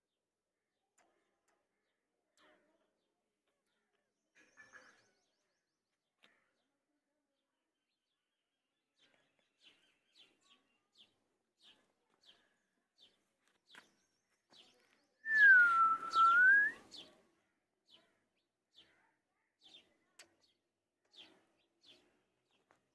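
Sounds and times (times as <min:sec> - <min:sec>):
small birds chirping: 0:00.8 - 0:22.9
clear whistle-like tone: 0:15.3 - 0:16.8.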